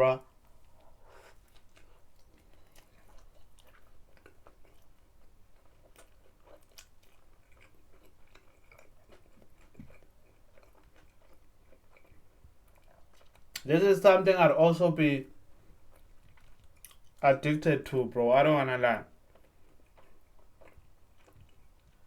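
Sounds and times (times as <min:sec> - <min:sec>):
person chewing food: 0:00.2 - 0:13.7, 0:15.3 - 0:17.2, 0:19.1 - 0:22.0.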